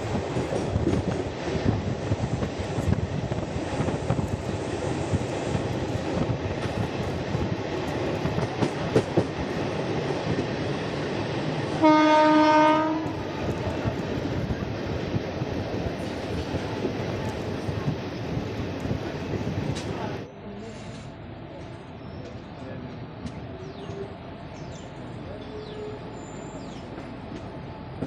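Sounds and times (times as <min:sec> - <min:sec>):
train rumble and wheel clatter: 0:00.0 - 0:28.0
locomotive horn: 0:11.8 - 0:13.3.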